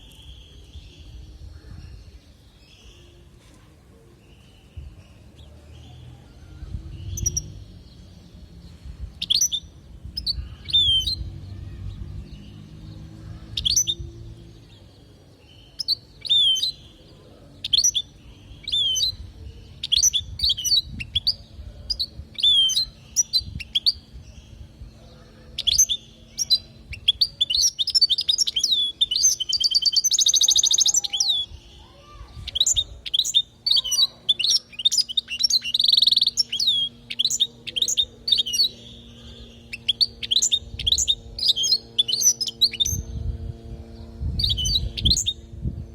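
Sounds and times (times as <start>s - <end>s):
low background rumble: 3.9s - 45.9s
goldfinch singing: 6.9s - 8.6s, 9.2s - 43.2s, 44.4s - 45.5s
buzzy bird trill: 25.3s - 43.3s.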